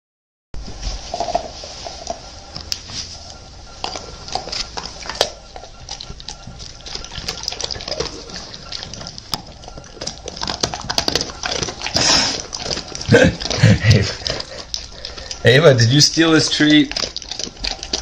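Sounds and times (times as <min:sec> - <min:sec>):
dogs licking and chewing: 0:00.7 - 0:18.0.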